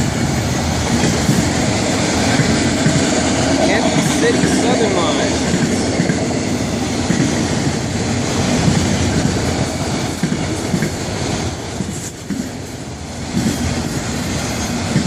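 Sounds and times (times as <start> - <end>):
freight train wheels clacking: 0.0 - 15.0.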